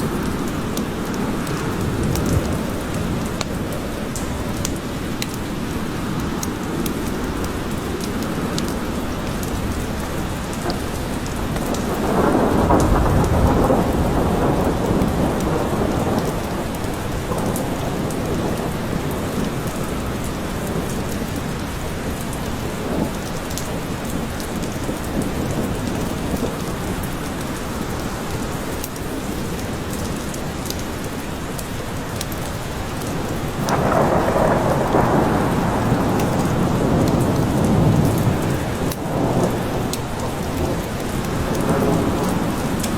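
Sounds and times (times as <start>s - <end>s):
thunder rolling: 0.0s - 4.6s, 9.2s - 20.0s, 33.5s - 42.9s
raindrop ticks: 0.0s - 42.9s
steady rain: 0.0s - 42.9s.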